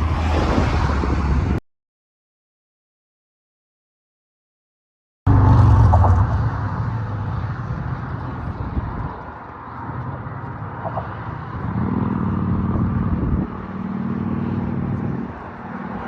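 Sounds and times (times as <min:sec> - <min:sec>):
traffic rush: 0:00.0 - 0:01.6, 0:05.3 - 0:16.0
vehicle engine hum: 0:05.3 - 0:16.0.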